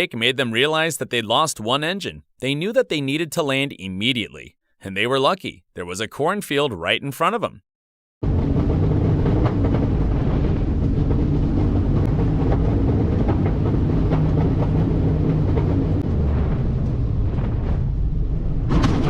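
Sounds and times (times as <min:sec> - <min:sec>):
propeller plane cockpit drone: 0:08.2 - 0:17.3.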